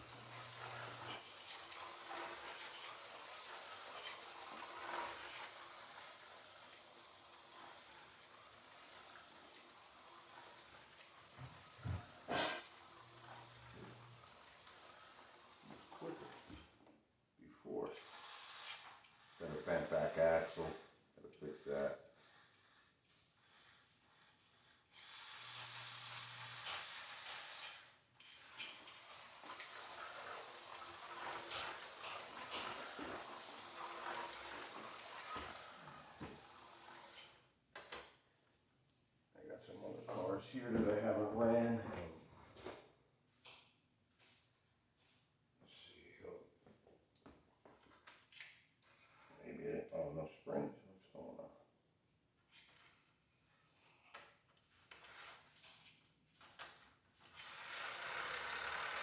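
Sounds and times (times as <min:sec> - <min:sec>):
slot car motor buzzing: 0:00.0 - 0:16.8, 0:18.0 - 0:37.5, 0:57.3 - 0:59.0.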